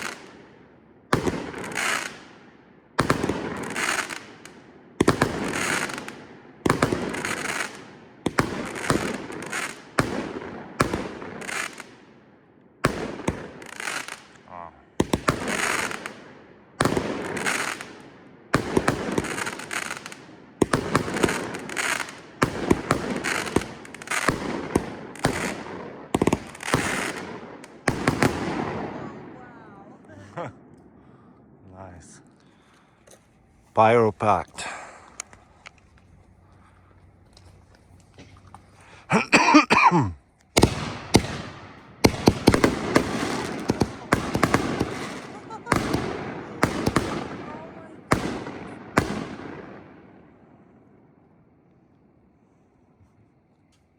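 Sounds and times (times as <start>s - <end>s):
firework bangs with crackle: 0.0s - 0.3s, 1.1s - 2.3s, 3.0s - 12.0s, 12.8s - 14.4s, 15.0s - 29.2s, 40.5s - 50.1s
cough-like voice sound: 39.1s - 40.2s.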